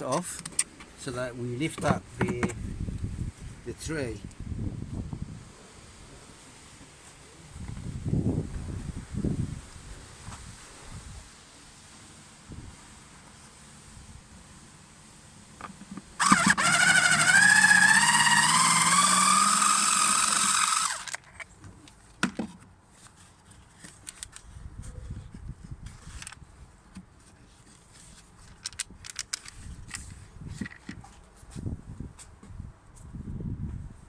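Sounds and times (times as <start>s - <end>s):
parts clicking and knocking: 15.6s - 22.7s, 23.8s - 24.5s, 28.0s - 31.2s
power tool motor running: 16.2s - 21.2s.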